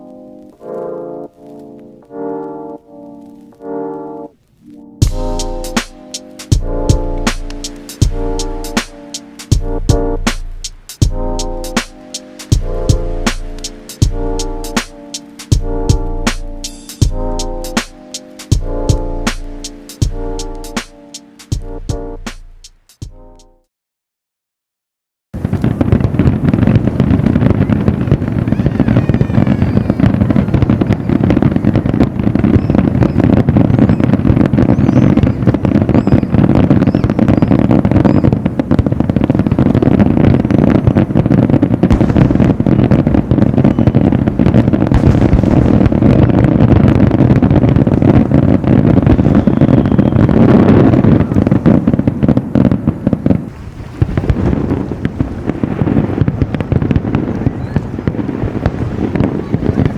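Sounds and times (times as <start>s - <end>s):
heavy low rumble: 5.0s - 5.8s
fireworks bangs and crackling: 5.0s - 22.3s, 25.4s - 59.9s.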